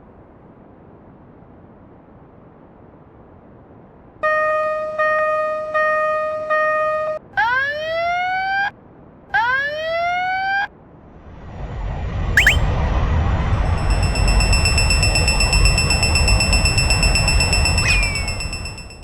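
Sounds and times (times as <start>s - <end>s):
siren blasts: 12.4s - 12.6s.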